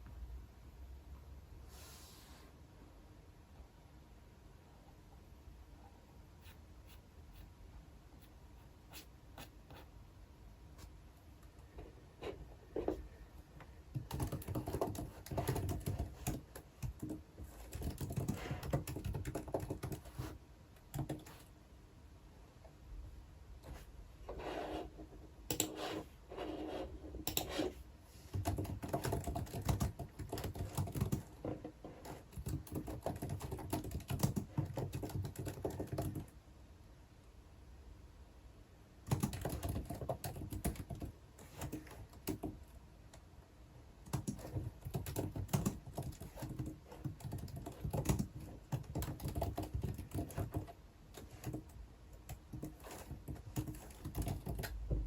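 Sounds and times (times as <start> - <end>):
typing on computer keyboard: 13.9 - 21.4, 25.5 - 25.8, 28.3 - 36.3, 39.0 - 42.6, 44.0 - 54.8.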